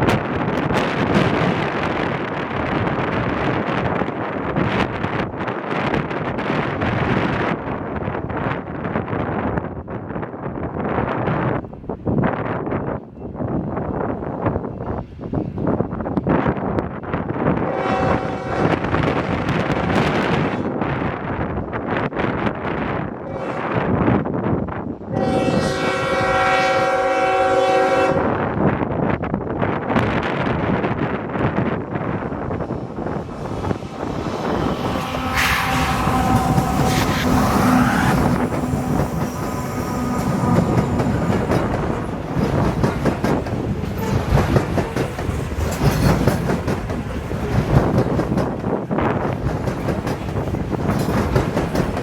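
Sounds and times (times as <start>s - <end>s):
steady rumble of train: 0.0s - 52.0s
wind buffeting microphone: 0.0s - 52.0s
train cars rolling past: 28.8s - 52.0s.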